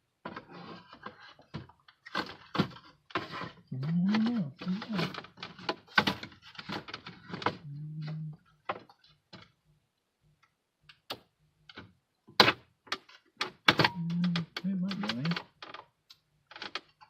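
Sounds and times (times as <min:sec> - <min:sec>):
plastic clicks and knocks: 0:01.0 - 0:07.6, 0:10.8 - 0:17.0.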